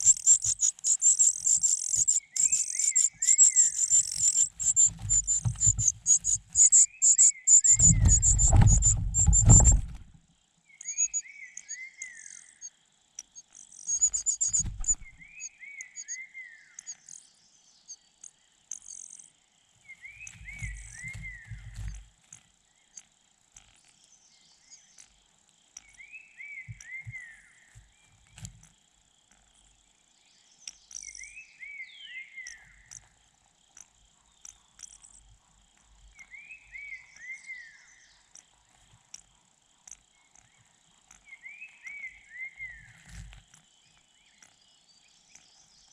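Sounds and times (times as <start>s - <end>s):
rapid high chirping: 0.0s - 10.0s, 13.8s - 15.4s
faint insect trill: 0.0s - 45.9s.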